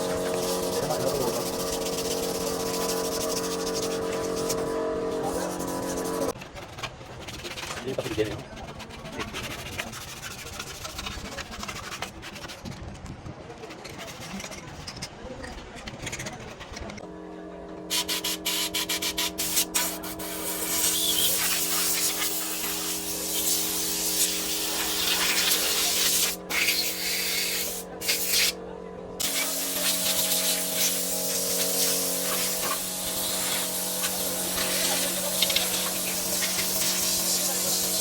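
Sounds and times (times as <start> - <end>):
hissing spray jet: 0.0 - 6.4, 17.9 - 28.6, 29.2 - 38.0
steady multi-tone hum: 0.0 - 6.4, 16.8 - 38.0.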